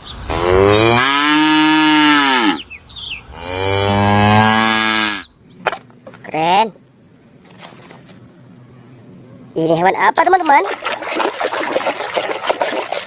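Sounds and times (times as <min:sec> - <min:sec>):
cow mooing: 0:00.3 - 0:02.7, 0:03.3 - 0:05.3.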